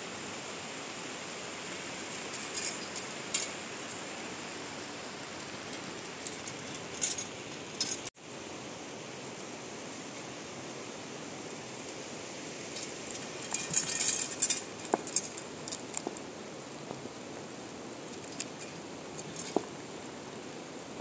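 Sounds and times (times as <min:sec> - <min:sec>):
steady rain falling: 0:00.0 - 0:21.0
rustling and clicking: 0:02.1 - 0:04.0, 0:05.3 - 0:08.1, 0:12.7 - 0:19.8.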